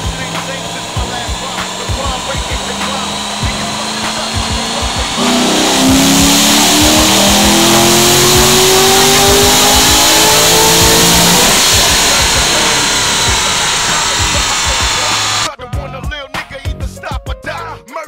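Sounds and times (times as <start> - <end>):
car engine revving under load: 0.0 - 15.5.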